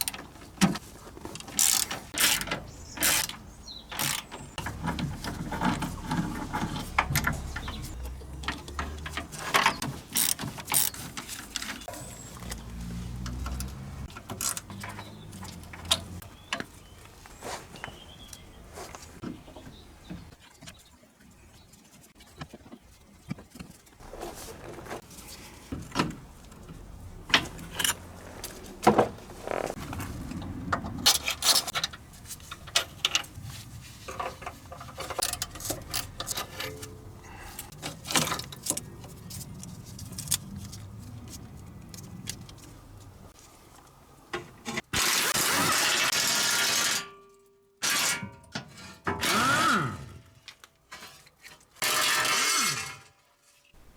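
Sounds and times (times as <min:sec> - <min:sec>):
metal parts clinking and clanking: 0:00.0 - 0:16.6, 0:24.0 - 0:41.0.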